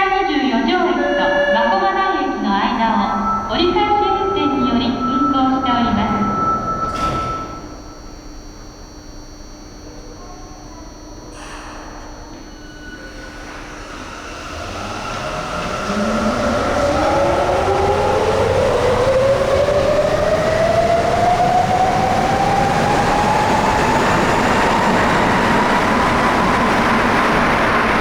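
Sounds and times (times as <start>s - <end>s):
train motor whine rising in pitch: 0.0s - 9.2s, 12.3s - 28.0s
train running rumble: 2.4s - 8.2s, 12.0s - 28.0s.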